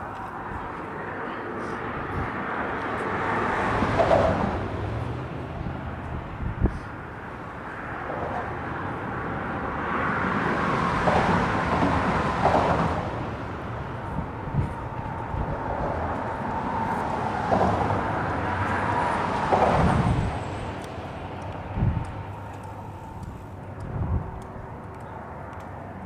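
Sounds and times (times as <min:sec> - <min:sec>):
cars passing: 0:00.0 - 0:26.0
steady traffic hum: 0:00.0 - 0:26.0.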